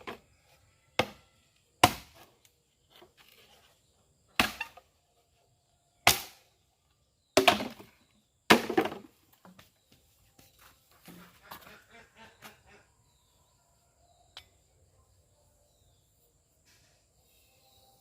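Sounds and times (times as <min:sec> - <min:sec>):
cleaver chopping: 0:01.8 - 0:02.2, 0:04.4 - 0:04.8, 0:06.0 - 0:06.4, 0:07.4 - 0:07.8.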